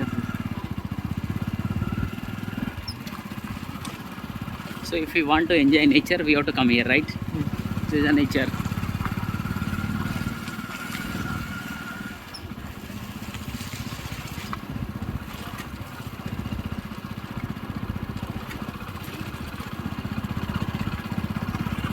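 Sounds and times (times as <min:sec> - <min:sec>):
small engine throbbing: 0:00.0 - 0:21.9.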